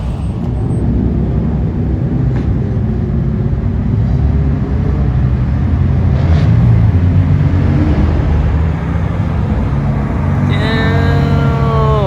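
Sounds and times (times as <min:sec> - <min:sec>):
car engine running: 0:00.0 - 0:01.5, 0:06.8 - 0:12.0.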